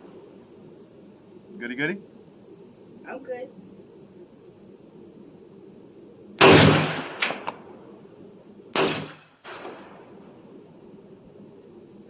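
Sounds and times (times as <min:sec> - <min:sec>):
pistol shots: 0:06.4 - 0:07.6, 0:08.8 - 0:10.0
faint cracks: 0:06.5 - 0:07.7.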